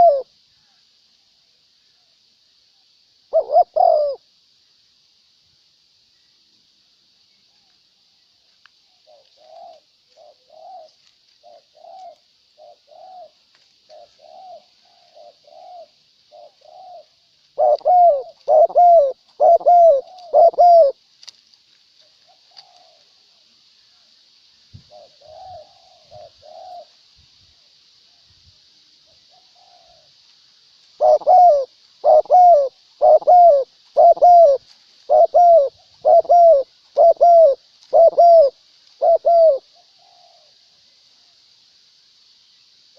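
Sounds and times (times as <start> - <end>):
doves cooing: 0.0 - 0.8, 3.3 - 4.2, 9.0 - 21.0, 22.0 - 23.5, 24.8 - 27.0, 29.1 - 30.2, 30.9 - 40.8.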